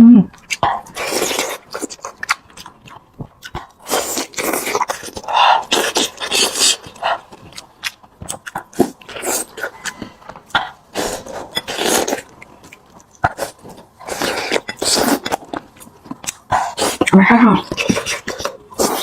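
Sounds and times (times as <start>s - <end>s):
person chewing meat: 0.3s - 19.0s
chewing clicks: 14.4s - 19.0s.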